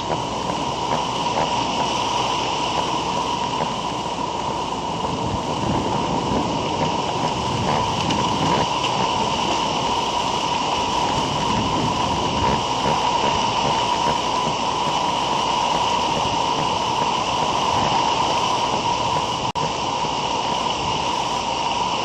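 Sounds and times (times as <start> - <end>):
constant high whine: 0.0 - 22.0
rushing background noise: 0.0 - 22.0.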